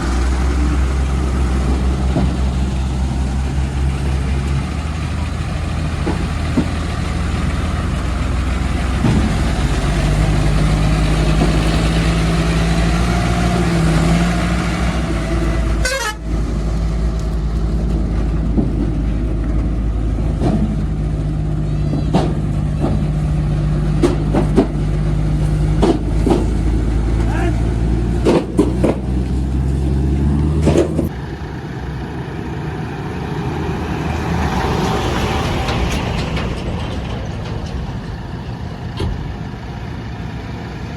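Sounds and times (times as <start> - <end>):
heavy diesel engine running: 0.0 - 40.9
sharp knocks and clanks: 0.1 - 7.2, 8.7 - 15.4, 17.5 - 27.3, 28.0 - 29.4, 30.5 - 31.1.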